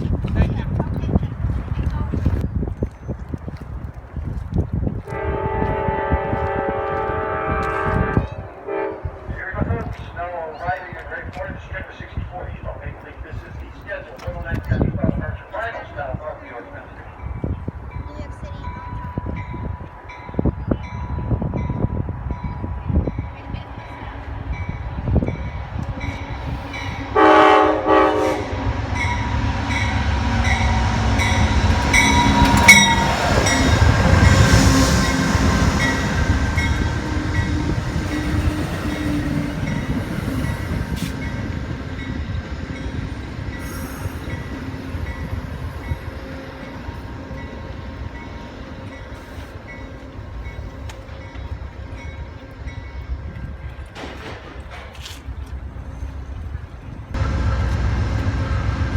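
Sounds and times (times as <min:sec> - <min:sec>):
train rumbling past: 0:04.0 - 0:58.9
train horn blast: 0:05.1 - 0:09.4, 0:26.5 - 0:41.4
locomotive bell ringing: 0:29.0 - 0:53.8.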